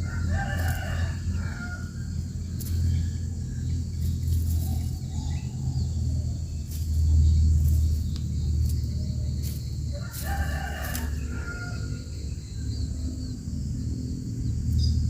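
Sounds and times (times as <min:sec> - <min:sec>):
bird calling: 0:00.0 - 0:12.0
low rumble: 0:00.0 - 0:15.0.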